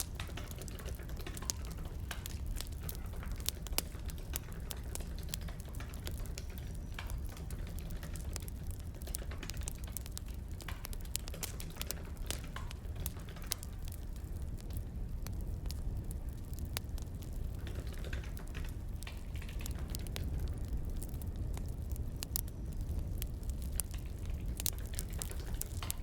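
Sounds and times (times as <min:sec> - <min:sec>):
firewood crackling and popping: 0:00.0 - 0:26.0
low fire rumble: 0:00.0 - 0:26.0.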